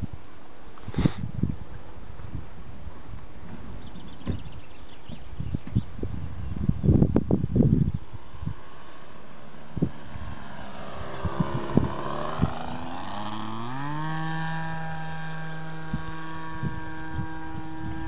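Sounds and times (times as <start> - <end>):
model aircraft engine running: 5.7 - 18.0.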